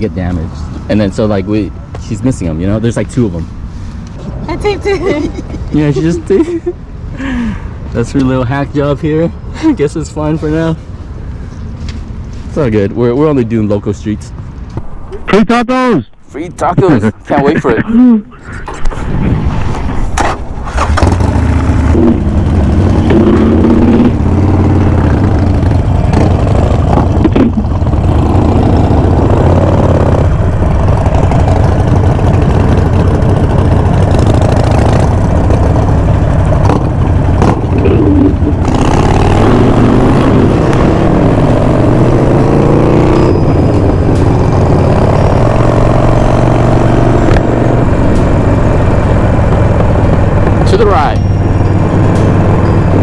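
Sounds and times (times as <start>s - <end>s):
motorcycle engines revving: 14.6s - 53.0s.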